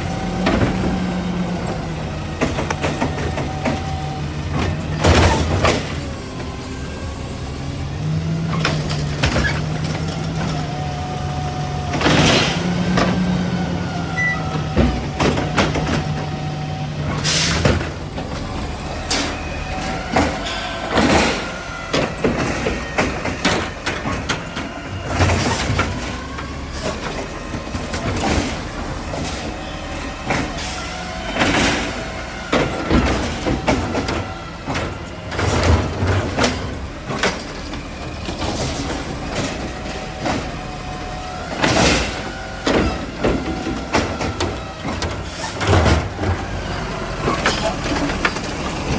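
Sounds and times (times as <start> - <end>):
garbage truck hydraulic hum: 0.0 - 48.9
metal clanks and bangs: 14.3 - 48.9
high bending squeals: 19.1 - 21.9.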